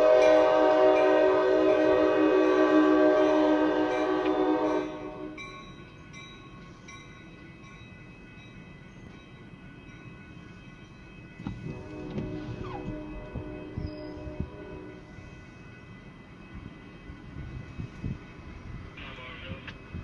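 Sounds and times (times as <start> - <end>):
locomotive air horn chord: 0.0 - 5.5, 11.5 - 15.4.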